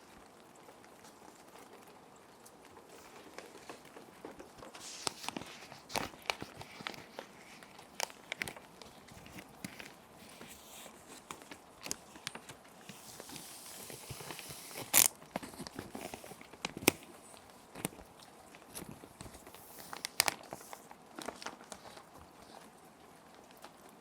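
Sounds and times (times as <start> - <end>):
soft rain hiss: 0.0 - 24.0
plastic sheet protectors crinkling: 2.8 - 22.7.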